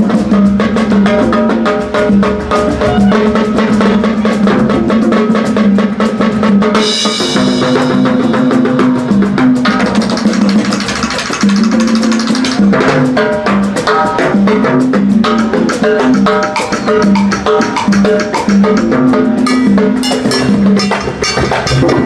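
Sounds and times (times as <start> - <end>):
bass line: 0.0 - 5.2
drum kit and percussion: 0.0 - 22.0
high-pitched instrument notes: 2.5 - 4.7, 19.4 - 22.0.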